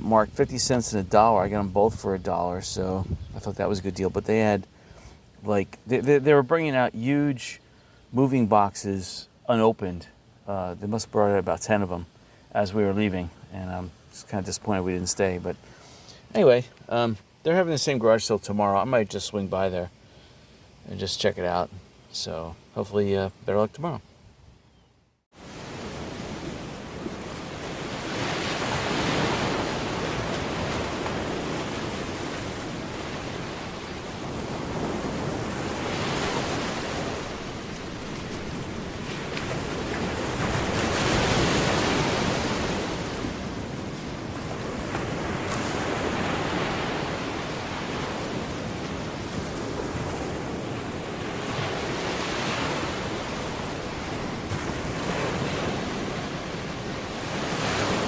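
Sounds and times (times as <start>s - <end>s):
ocean waves washing: 25.3s - 58.0s.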